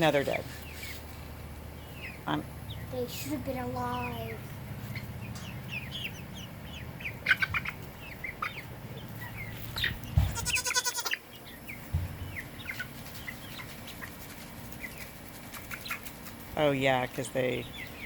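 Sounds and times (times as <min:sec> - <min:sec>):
chickens clucking and chirping: 0:00.0 - 0:18.0
chicken drawn-out call: 0:07.1 - 0:11.3.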